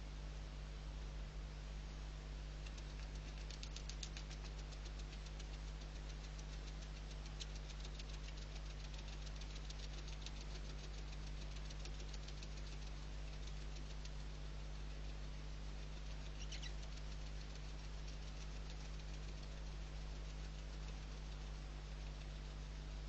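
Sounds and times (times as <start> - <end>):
low electrical hum: 0.0 - 23.0
fast regular clicking: 2.6 - 15.0.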